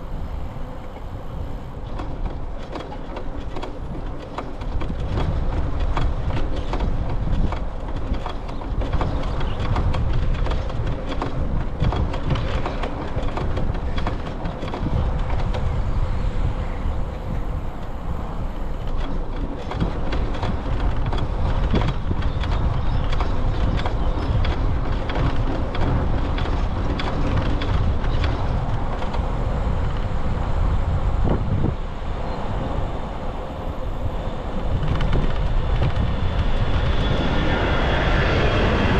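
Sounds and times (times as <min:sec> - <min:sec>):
bicycle rolling noise: 0:00.0 - 0:38.9
wind on microphone: 0:00.0 - 0:38.9
bicycle rattles and clicks: 0:00.1 - 0:31.8, 0:34.0 - 0:38.9.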